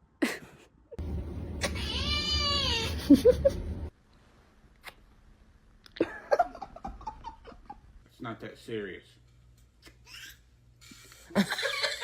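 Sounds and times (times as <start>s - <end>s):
low rumble: 1.0s - 3.9s
cat meowing: 1.6s - 3.0s.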